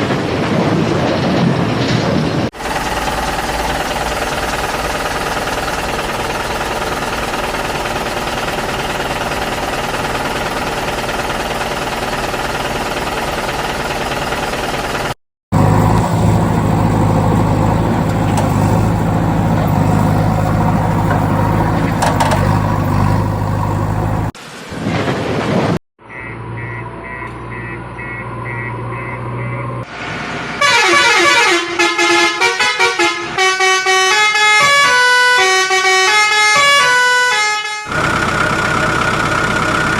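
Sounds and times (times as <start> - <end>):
engine-like drone: 1.1 - 24.4, 37.9 - 39.9
loud sustained horn: 30.6 - 38.0.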